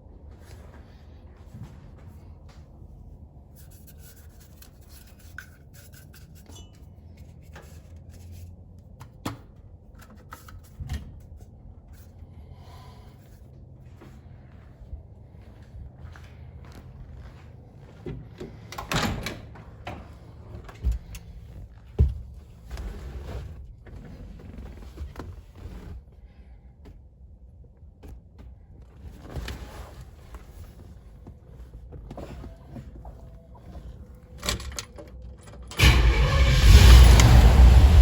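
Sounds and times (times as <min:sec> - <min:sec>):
car engine starting loudly: 0:35.8 - 0:38.0.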